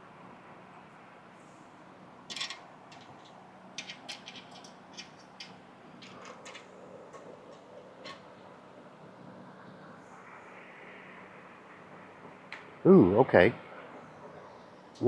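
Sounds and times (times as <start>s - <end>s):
metal washers clinking: 2.3s - 8.3s.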